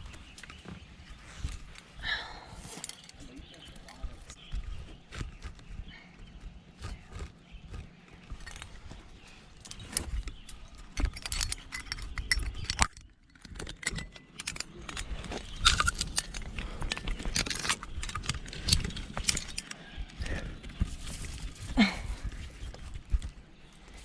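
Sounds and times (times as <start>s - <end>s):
metal climbing gear jangling: 2.7s - 3.2s, 8.3s - 8.8s, 9.6s - 20.4s.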